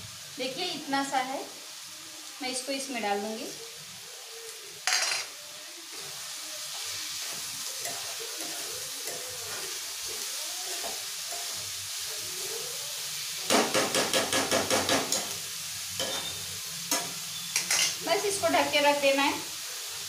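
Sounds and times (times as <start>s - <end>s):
vegetables sizzling in a pan: 0.0s - 20.0s
scraping strokes in a pan: 5.2s - 12.9s.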